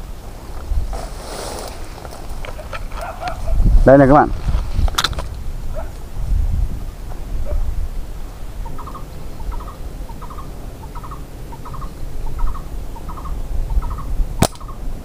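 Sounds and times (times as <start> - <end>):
bird double-note calls: 8.3 - 14.9.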